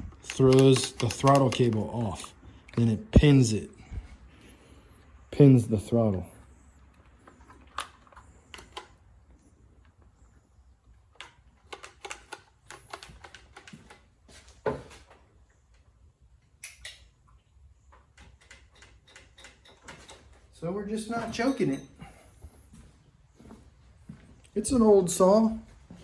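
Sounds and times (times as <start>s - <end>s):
chainsaw parts clicking and knocking: 0.0s - 3.0s, 7.0s - 9.0s, 11.1s - 14.1s, 18.1s - 20.4s.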